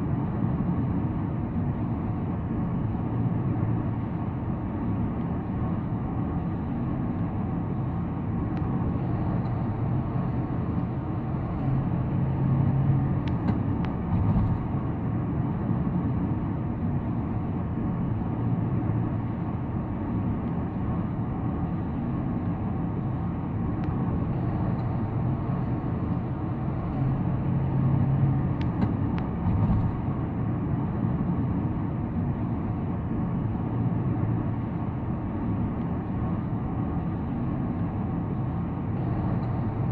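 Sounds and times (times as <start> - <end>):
car tyres and engine hum: 0.0 - 39.9.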